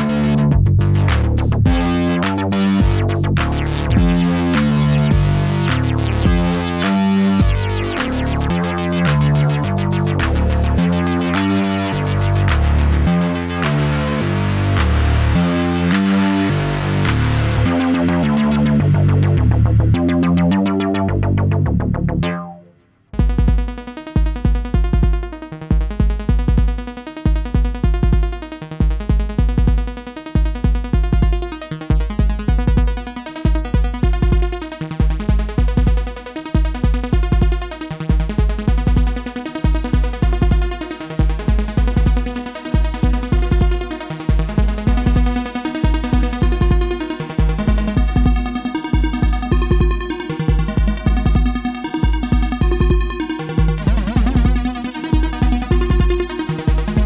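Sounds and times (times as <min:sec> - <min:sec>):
pitched synth notes: 0:00.0 - 0:22.8, 0:41.8 - 0:57.0
pulsing synth bass note: 0:00.0 - 0:23.3, 0:41.4 - 0:57.0.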